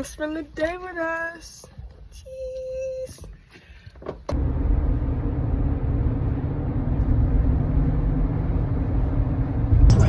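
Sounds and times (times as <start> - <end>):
car road and engine noise: 4.1 - 10.0.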